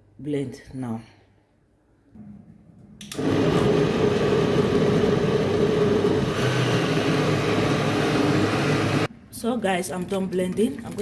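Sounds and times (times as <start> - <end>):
electric blender running: 3.2 - 9.1.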